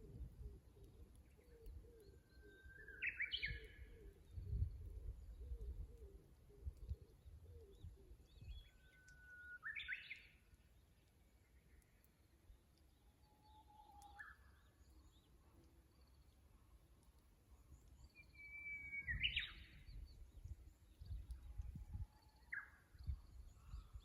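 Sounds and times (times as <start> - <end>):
bush warbler singing: 2.4 - 4.7, 18.0 - 21.6.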